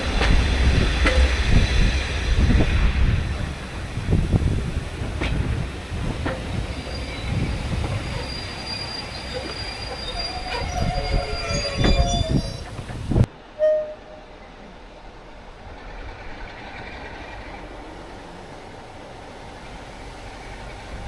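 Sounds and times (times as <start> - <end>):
train knocks: 0.0 - 14.2
train rumble: 0.0 - 21.0
thin wheel squeal: 6.8 - 12.9, 13.6 - 14.3.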